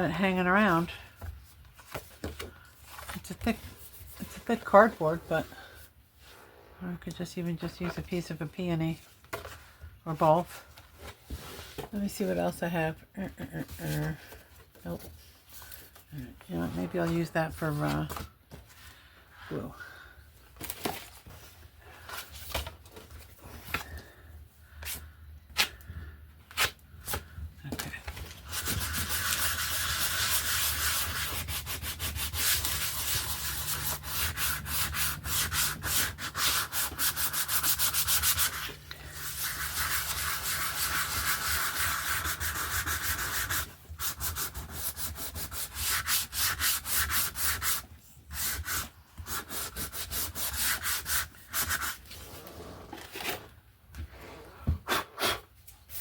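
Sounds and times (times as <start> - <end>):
sandpaper scratching cardboard: 28.4 - 52.2.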